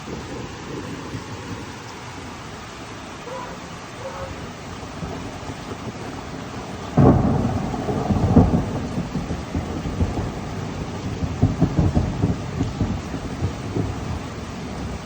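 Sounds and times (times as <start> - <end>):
steady rain: 0.0 - 15.0
thunderclap and rumble: 4.2 - 15.0.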